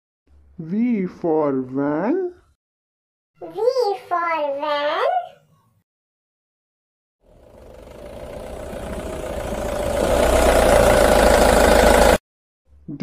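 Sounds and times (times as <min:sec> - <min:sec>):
vehicle engine running: 0:07.2 - 0:12.2.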